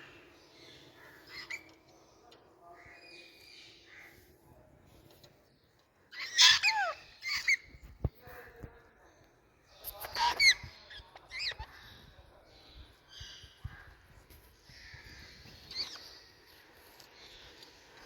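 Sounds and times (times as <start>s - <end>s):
parakeet calling: 6.1s - 7.8s.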